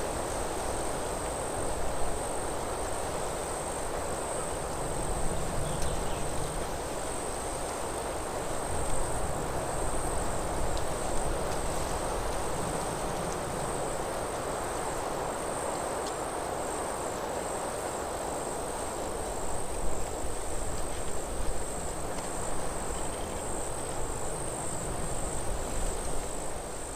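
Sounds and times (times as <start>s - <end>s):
wind through trees: 0.0s - 26.9s
high-pitched insect trill: 19.3s - 26.9s.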